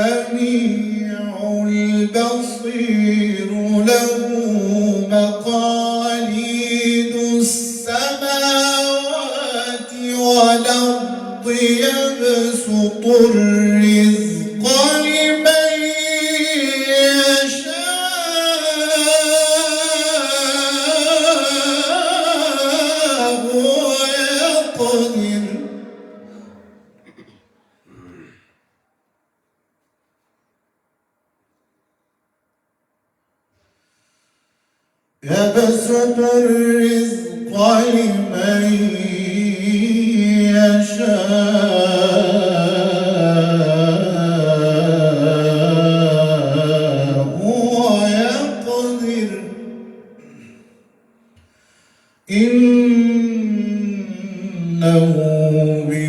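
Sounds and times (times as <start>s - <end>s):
man chanting long melodic vowel: 0.0s - 27.0s, 35.2s - 50.4s.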